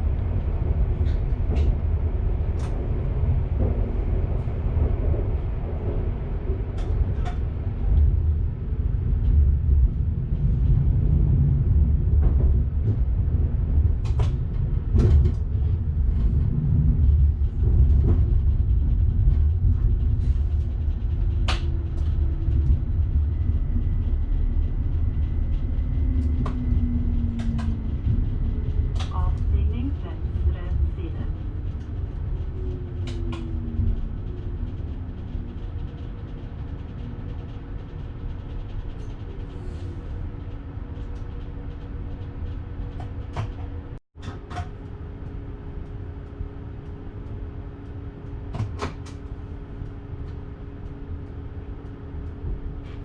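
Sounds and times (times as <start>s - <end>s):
train rumbling along track: 0.0s - 53.0s
clicks and knocks of track: 12.0s - 53.0s.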